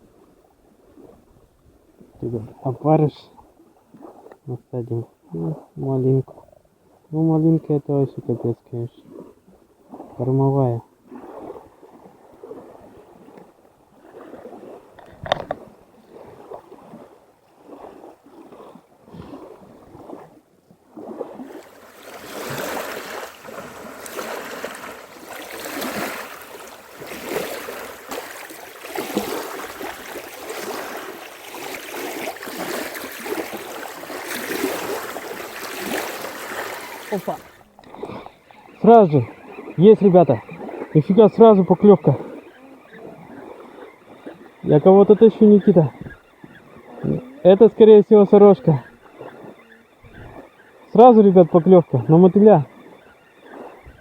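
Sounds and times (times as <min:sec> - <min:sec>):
small waves lapping: 0:00.0 - 0:54.0
wind on microphone: 0:11.0 - 0:47.8, 0:48.4 - 0:50.5, 0:52.6 - 0:54.0.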